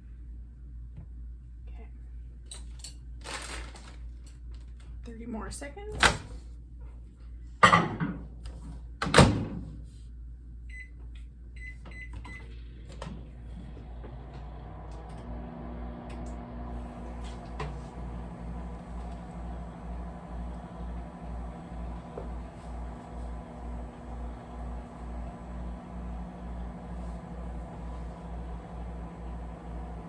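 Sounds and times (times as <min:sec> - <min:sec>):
microwave oven humming: 0:10.7 - 0:30.0.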